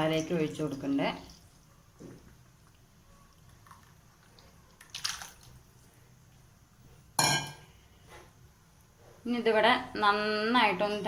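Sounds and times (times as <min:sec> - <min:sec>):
metal vessel clanking: 0:07.2 - 0:07.6.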